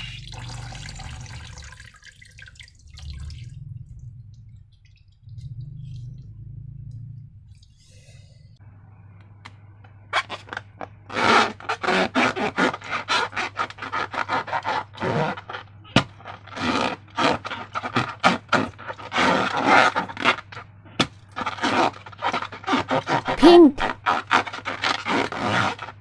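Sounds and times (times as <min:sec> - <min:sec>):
slime scraping and rubbing: 0:10.1 - 0:26.0.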